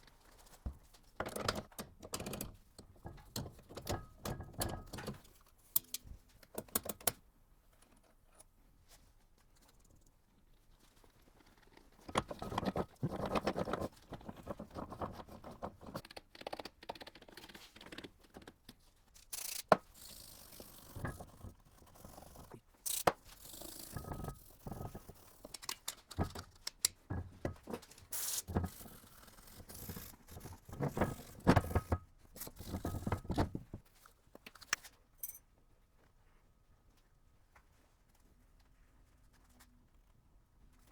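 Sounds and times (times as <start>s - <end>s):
metal parts scraping and clicking: 22.4s - 27.0s.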